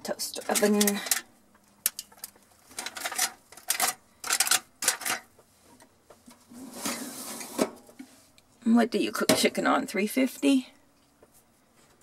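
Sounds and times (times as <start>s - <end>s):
clicks and metal clatters: 0.3s - 6.4s.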